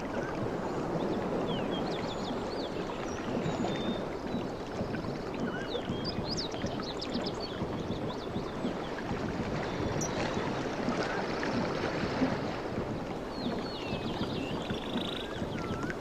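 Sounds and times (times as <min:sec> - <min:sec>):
water rushing: 0:00.0 - 0:16.0
small birds chirping: 0:00.1 - 0:11.2, 0:12.8 - 0:16.0.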